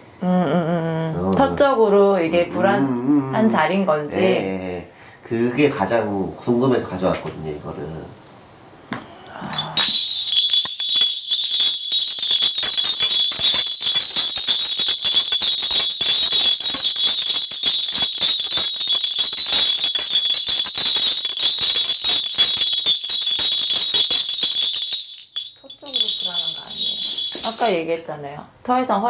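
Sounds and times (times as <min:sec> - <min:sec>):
small brass bells jingling: 0:09.5 - 0:28.3.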